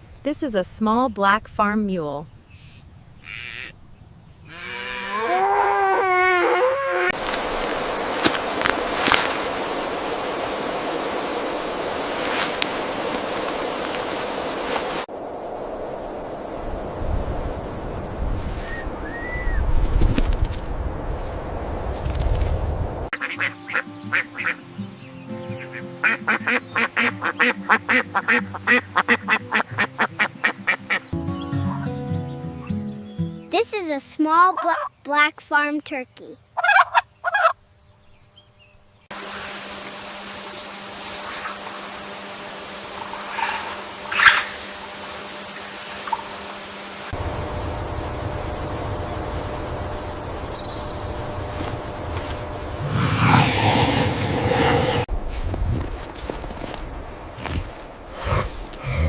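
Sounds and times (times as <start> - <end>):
farm animal calling: 2.6 - 3.8
duck quacking: 23.2 - 24.6, 26.0 - 31.1
background music: 23.2 - 33.6
steady rushing noise: 51.8 - 55.2.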